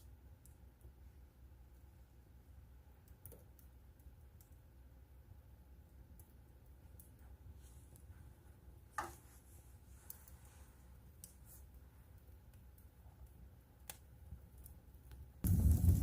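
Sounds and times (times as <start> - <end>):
wood fire crackling: 0.0 - 16.0
low hum: 15.4 - 16.0.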